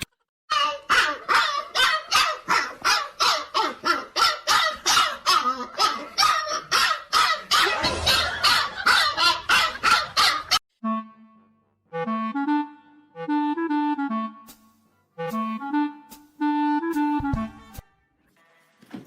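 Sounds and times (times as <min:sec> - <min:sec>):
dog barking rapidly: 0:00.6 - 0:10.6.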